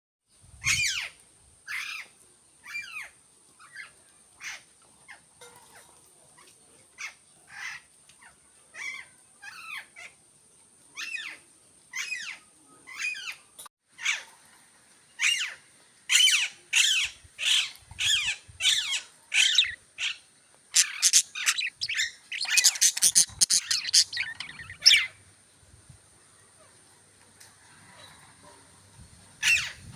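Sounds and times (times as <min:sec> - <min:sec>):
budgerigar chirping: 0:16.2 - 0:20.2, 0:20.8 - 0:25.1.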